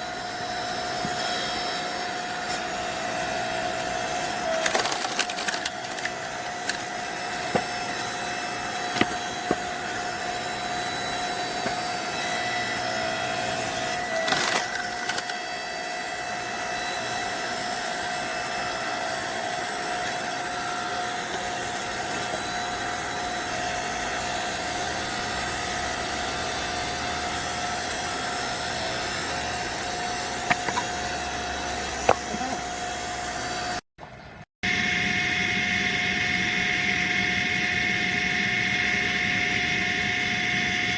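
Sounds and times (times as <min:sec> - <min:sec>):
log splitter humming: 0:00.0 - 0:40.9
logs cracking as they split: 0:04.6 - 0:06.8.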